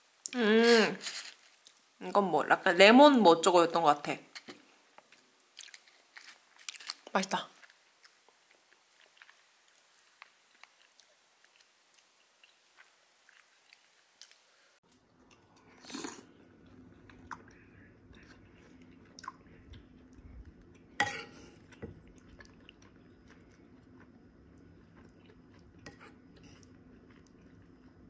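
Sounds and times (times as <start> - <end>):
faint chewing and mouth clicks: 4.4 - 28.0
low steady hum: 14.9 - 28.0.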